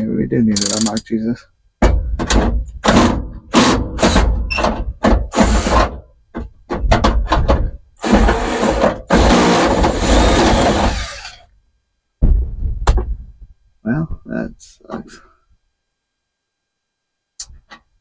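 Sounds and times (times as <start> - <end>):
power drill running: 8.0 - 11.4.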